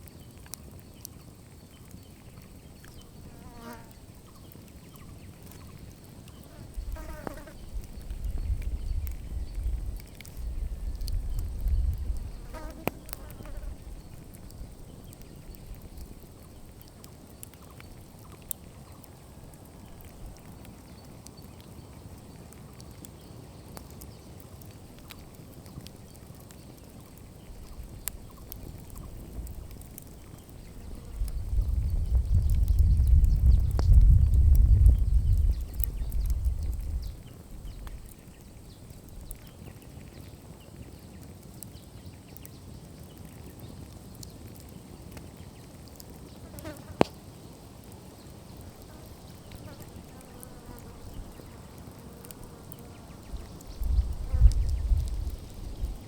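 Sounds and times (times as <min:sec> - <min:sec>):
campfire crackling: 0:00.0 - 0:56.0.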